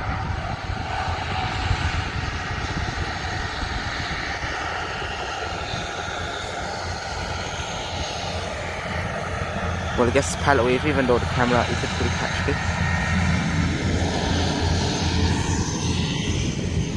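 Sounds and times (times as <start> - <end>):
jet engines running: 0.0 - 16.9.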